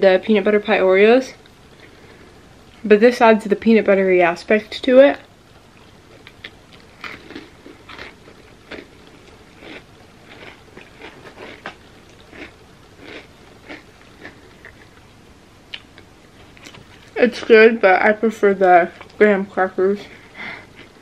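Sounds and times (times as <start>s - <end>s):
chewing cookie crunches: 5.8s - 15.1s.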